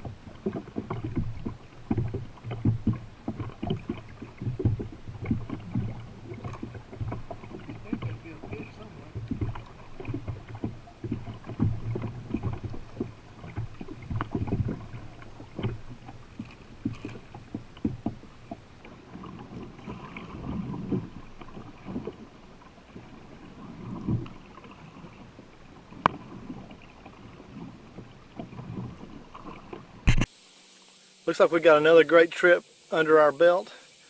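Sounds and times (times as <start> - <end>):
paddle splashes: 0.0 - 34.0.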